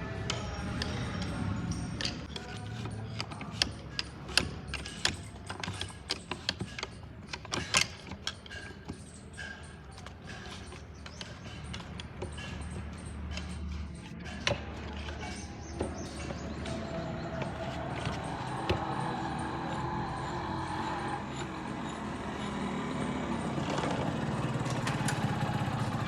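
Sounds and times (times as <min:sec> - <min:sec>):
metal tools clinking: 0:00.3 - 0:26.0.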